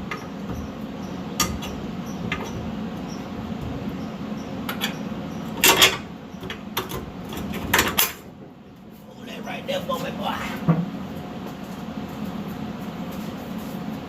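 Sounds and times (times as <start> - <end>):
metallic clanks and knocks: 0.0 - 2.7, 4.7 - 8.3
steady low hum: 0.0 - 14.0.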